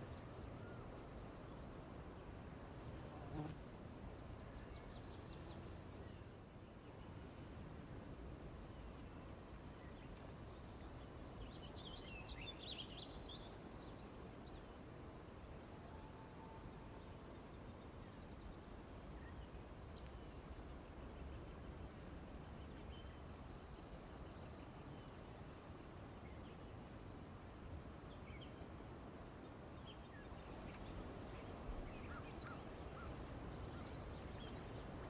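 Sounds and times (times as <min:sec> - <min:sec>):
distant birds chirping: 0:29.8 - 0:35.0.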